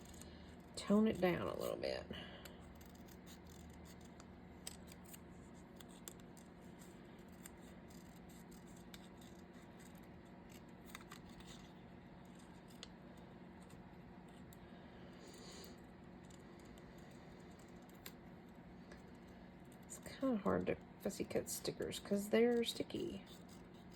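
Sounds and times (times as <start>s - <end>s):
scissors snipping paper: 0.0s - 0.3s, 2.6s - 13.0s, 22.0s - 23.9s
low steady hum: 0.0s - 23.9s.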